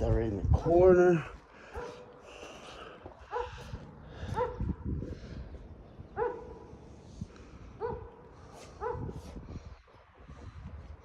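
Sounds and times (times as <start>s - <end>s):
dog barking: 1.7s - 2.2s, 3.3s - 3.6s, 4.2s - 4.7s, 6.2s - 6.7s, 7.8s - 9.2s.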